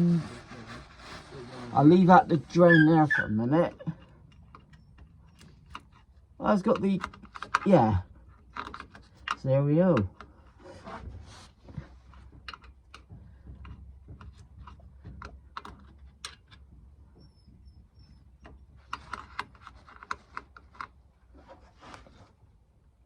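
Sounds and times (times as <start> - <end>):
metal tools clicking and tapping: 3.8 - 10.4, 12.1 - 20.9.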